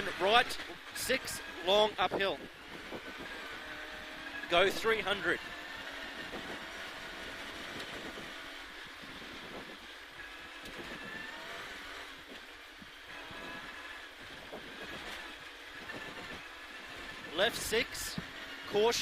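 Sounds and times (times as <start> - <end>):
car engine revving: 0.0 - 19.0
road noise: 0.0 - 19.0.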